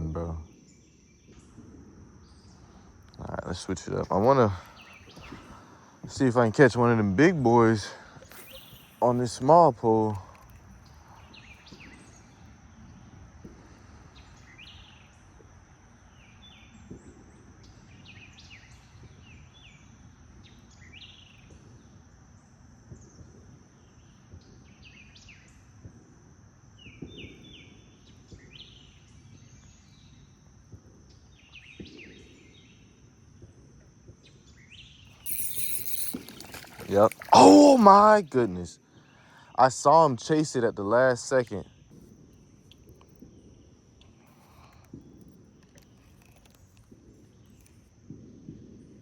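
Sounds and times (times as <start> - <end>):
small birds chirping: 2.3 - 7.1, 8.0 - 12.5, 34.7 - 40.0
high-pitched insect drone: 6.2 - 11.8, 35.1 - 38.7.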